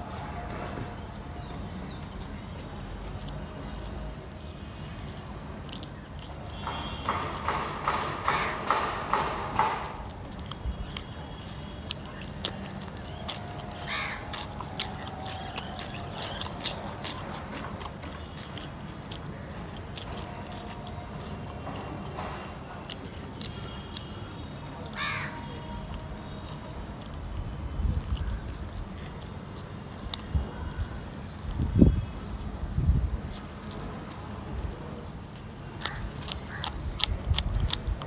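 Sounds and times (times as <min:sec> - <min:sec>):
person chewing food: 0:00.0 - 0:38.0
bird calling: 0:06.5 - 0:09.8, 0:13.1 - 0:16.4.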